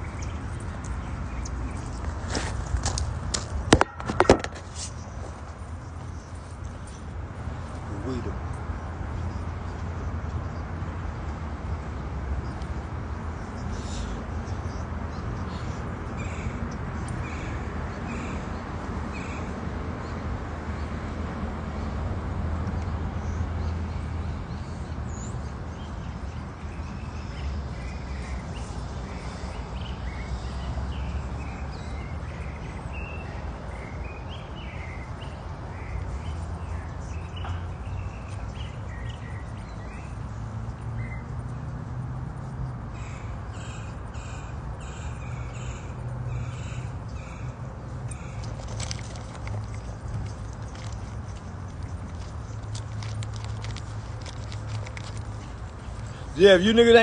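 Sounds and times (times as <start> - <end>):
birds chirping: 0.0 - 10.7, 22.8 - 41.7, 42.4 - 57.0.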